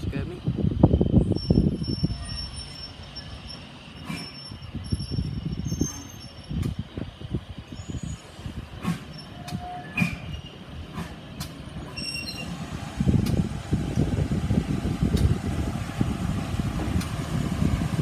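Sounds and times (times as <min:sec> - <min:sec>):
low locomotive rumble: 0:00.0 - 0:18.0
wheels squealing on rails: 0:01.1 - 0:07.1, 0:07.7 - 0:12.6.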